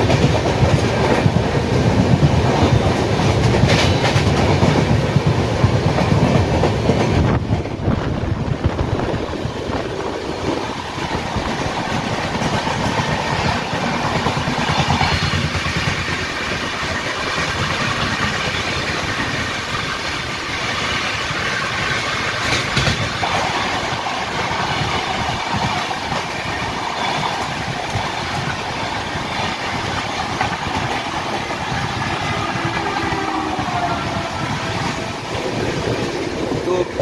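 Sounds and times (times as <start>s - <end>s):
train wheels rumbling and rattling: 0.0s - 37.0s.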